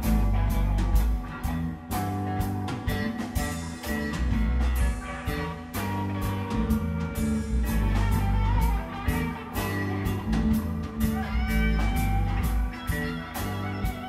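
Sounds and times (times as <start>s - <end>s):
bass guitar: 0.0s - 14.0s
drums: 0.0s - 14.0s
electric guitar lead: 0.0s - 14.0s.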